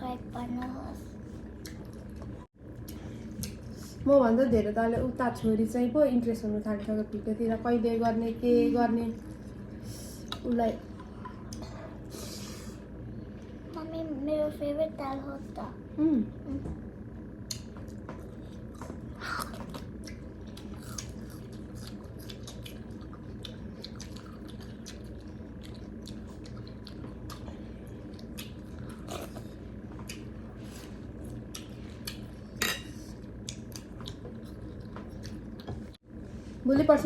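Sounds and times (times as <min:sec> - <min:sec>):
low steady hum: 0:00.0 - 0:37.0
person chewing: 0:17.5 - 0:35.9.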